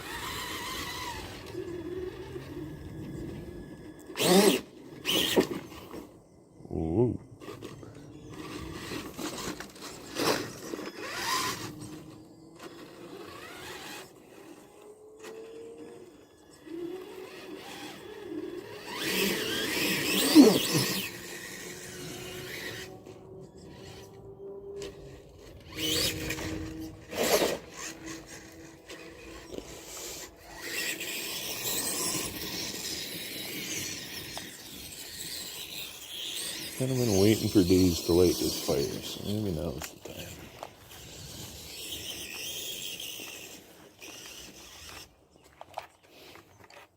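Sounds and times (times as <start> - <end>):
electric motor and gears whining: 0.0 - 46.9
scraping and crunching: 8.4 - 14.6, 24.8 - 46.9.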